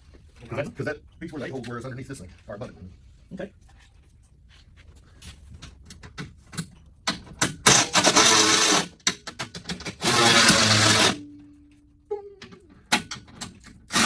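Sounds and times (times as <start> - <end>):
hardware clicks and taps: 5.6 - 8.3
power tool driving fasteners: 7.4 - 11.2, 13.0 - 14.0.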